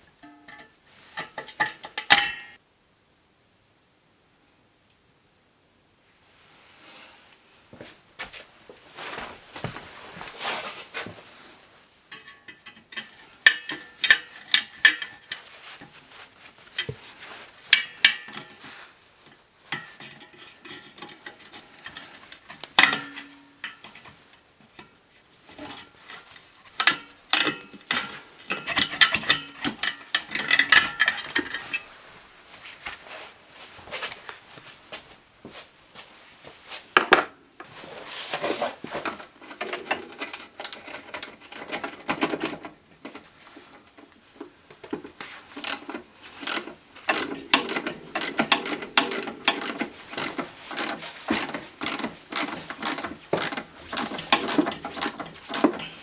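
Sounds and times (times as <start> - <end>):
metal tools clinking and rattling: 25.6 - 31.9, 45.4 - 56.0.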